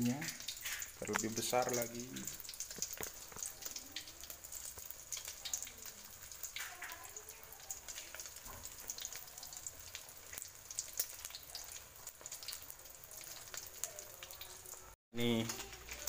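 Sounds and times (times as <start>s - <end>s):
egg frying in crackling oil: 0.0s - 16.0s.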